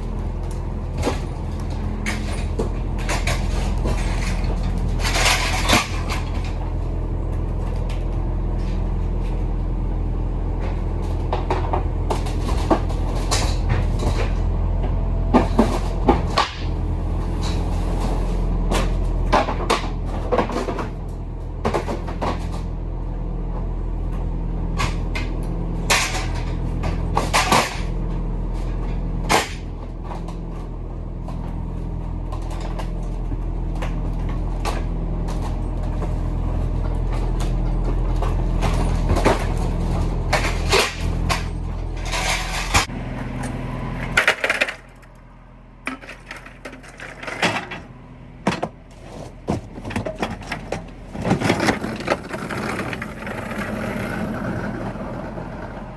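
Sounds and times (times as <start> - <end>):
low engine drone: 0.0 - 55.9
clunks and knocks: 10.6 - 21.0, 21.6 - 22.7, 45.8 - 53.8
rattles: 45.8 - 47.9.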